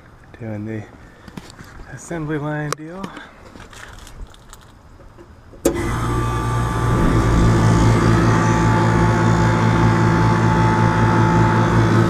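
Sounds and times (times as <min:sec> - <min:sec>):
air conditioner compressor hum: 0:05.7 - 0:12.0.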